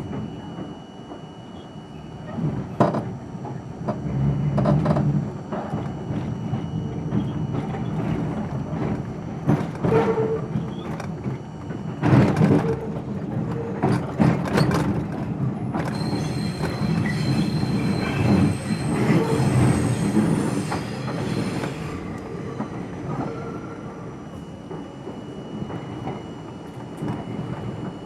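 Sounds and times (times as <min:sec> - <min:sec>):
subway train on rails: 0:00.0 - 0:28.0
high wheel squeal: 0:15.9 - 0:22.5.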